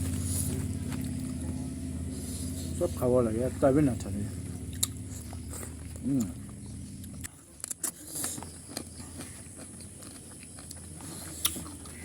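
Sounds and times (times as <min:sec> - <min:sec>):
close-up wet chewing: 0:00.0 - 0:03.1, 0:03.9 - 0:12.0.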